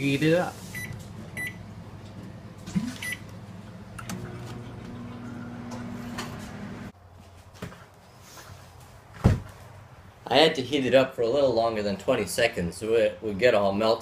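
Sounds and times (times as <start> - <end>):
microwave oven humming: 0.8 - 6.9
keypad beeps: 3.0 - 3.2.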